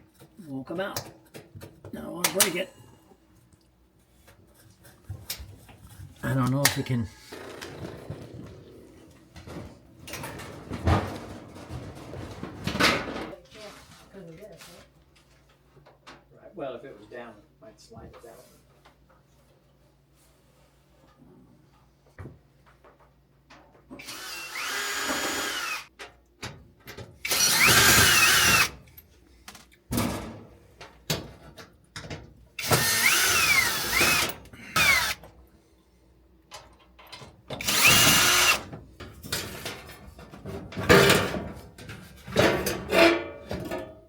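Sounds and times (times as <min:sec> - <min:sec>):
cordless drill motor whirring: 0:24.0 - 0:25.9, 0:27.2 - 0:28.7, 0:32.6 - 0:35.2, 0:37.6 - 0:38.6.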